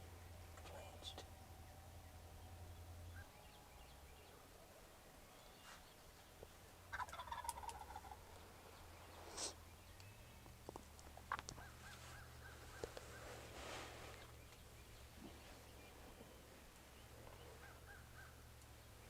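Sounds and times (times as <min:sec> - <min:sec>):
turkey gobbling: 0:06.9 - 0:08.3.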